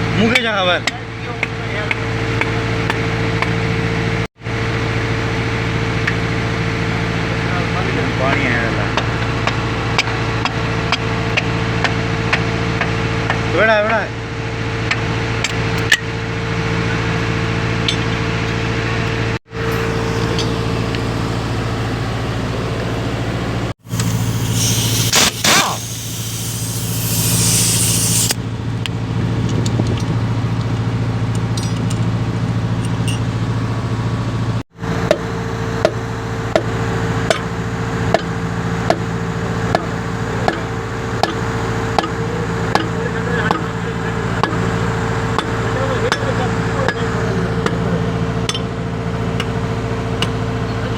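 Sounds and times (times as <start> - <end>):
engine humming: 0.0 - 50.9
loud hiss of air jet: 23.8 - 28.4.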